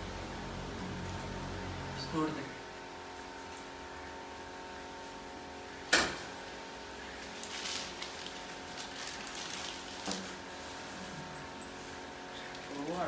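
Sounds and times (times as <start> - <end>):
steady hum: 0.0 - 13.0
scraping and handling noises: 7.2 - 13.0.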